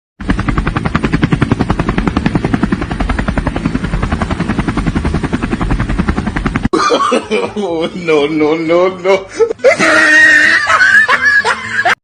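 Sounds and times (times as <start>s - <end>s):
low engine rumble: 0.2s - 6.7s
helicopter rotor blades chopping: 0.2s - 6.8s.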